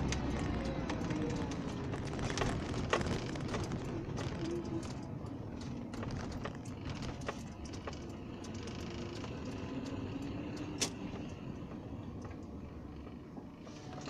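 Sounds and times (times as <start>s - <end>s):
small clicks and rattles: 0.0s - 13.2s
car driving rumble: 0.0s - 14.0s.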